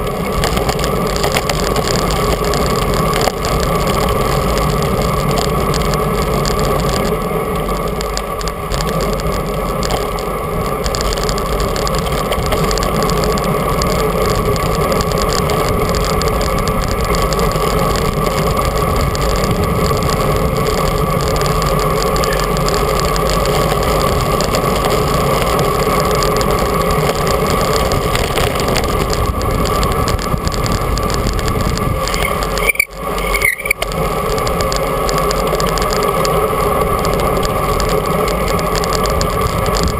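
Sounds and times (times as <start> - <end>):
bicycle road noise: 0.0 - 39.9
wind rush on microphone: 0.0 - 39.9.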